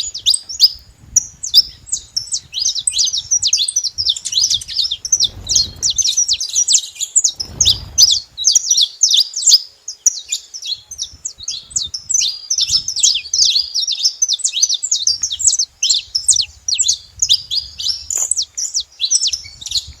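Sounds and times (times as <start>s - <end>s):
finches chirping: 0.0s - 20.0s.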